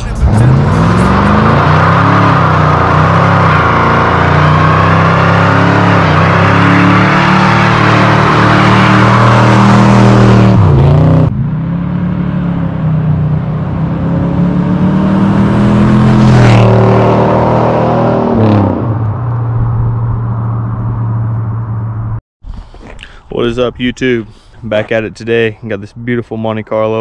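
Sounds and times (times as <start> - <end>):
car engine revving: 0.0 - 22.2.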